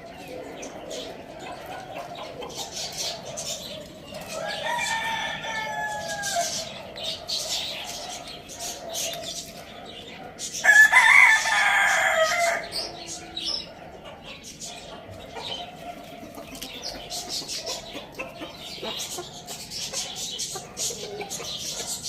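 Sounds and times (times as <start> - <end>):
bird chirps and clucks: 0.0 - 22.0
rooster crowing: 4.3 - 6.8, 10.6 - 12.8.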